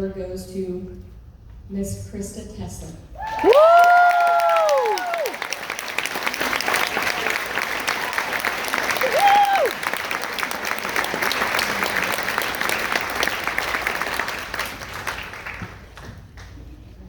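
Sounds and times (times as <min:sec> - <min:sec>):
person whooping: 0:03.2 - 0:05.4, 0:09.0 - 0:09.8
audience clapping: 0:03.2 - 0:16.7.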